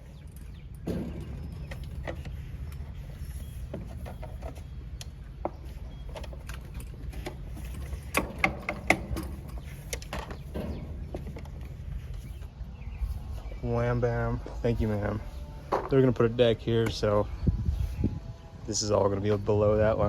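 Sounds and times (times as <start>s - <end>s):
steady low rumble: 0.0s - 20.0s
sharp clicks and knocks: 3.7s - 12.5s.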